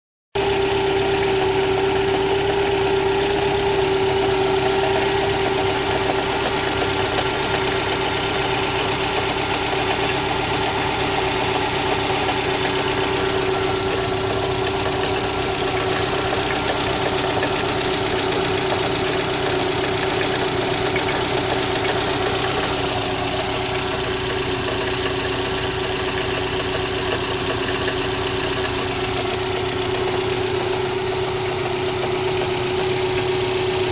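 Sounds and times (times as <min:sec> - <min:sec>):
car engine idling: 0:00.4 - 0:33.9
engine knocking: 0:00.4 - 0:33.9
steady whine: 0:03.4 - 0:25.4.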